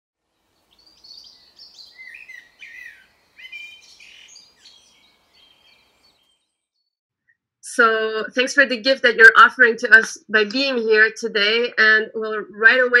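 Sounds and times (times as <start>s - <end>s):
birds singing and chirping: 0.4s - 6.9s.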